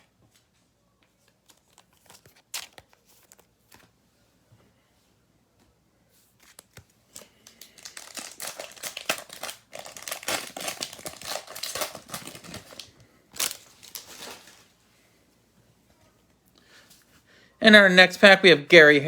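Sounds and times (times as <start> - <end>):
plastic wrapper crinkling: 1.4 - 3.9, 6.4 - 14.8
plastic wrapper ripping: 1.4 - 3.9, 6.4 - 14.7.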